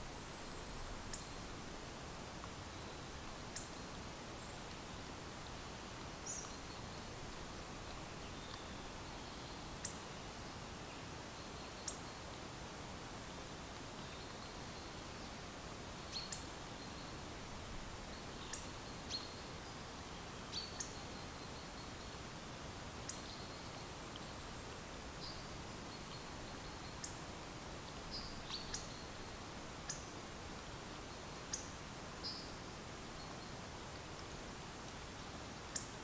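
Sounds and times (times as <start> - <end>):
steady outdoor hiss: 0.0 - 36.0
small birds chirping: 6.2 - 10.2, 25.2 - 30.3.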